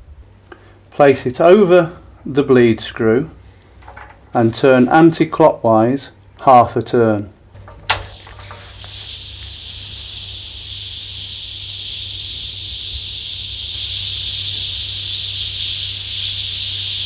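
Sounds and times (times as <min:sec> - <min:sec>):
air hissing from radiator valve: 0:07.9 - 0:17.0.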